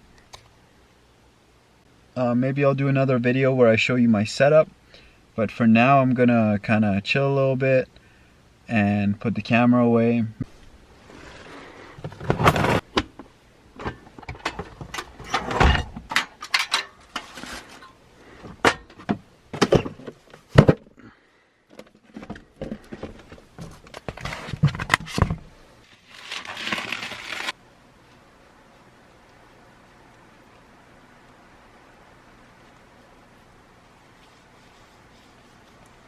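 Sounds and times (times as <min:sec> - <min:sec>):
faint hiss: 0:00.0 - 0:12.1, 0:27.5 - 0:36.0
rustling: 0:10.4 - 0:19.2, 0:19.8 - 0:31.4, 0:32.1 - 0:36.0.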